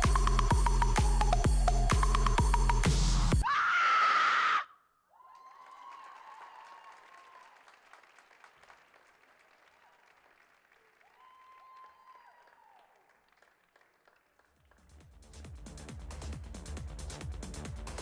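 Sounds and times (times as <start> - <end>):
faint crowd applause: 5.3 - 14.9.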